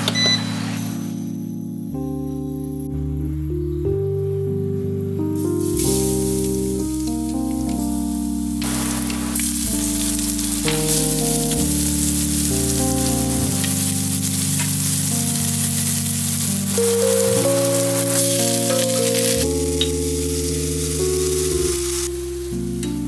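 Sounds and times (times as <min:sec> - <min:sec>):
soft background music: 0:00.0 - 0:23.0
garlic sizzling in hot oil: 0:05.6 - 0:07.4, 0:08.0 - 0:22.3.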